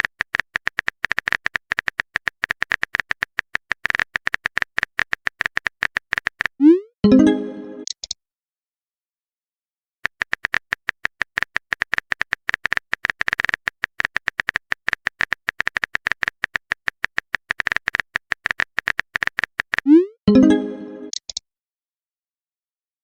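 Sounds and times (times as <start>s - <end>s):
phone keyboard typing clicks: 0.0s - 6.7s, 7.8s - 8.2s, 10.0s - 19.9s, 21.0s - 21.4s.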